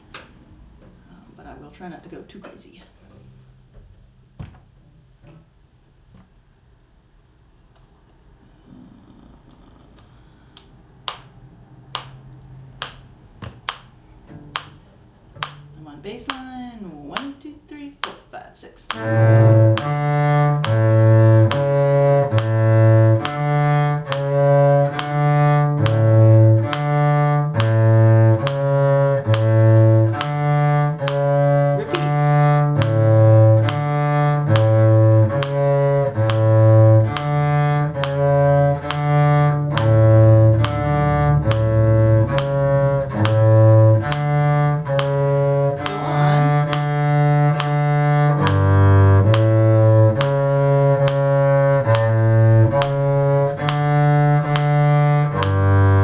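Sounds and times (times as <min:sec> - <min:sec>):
low bowed string instrument: 0:10.6 - 0:17.3, 0:18.9 - 0:56.0
higher held notes: 0:31.0 - 0:33.8, 0:44.8 - 0:47.8.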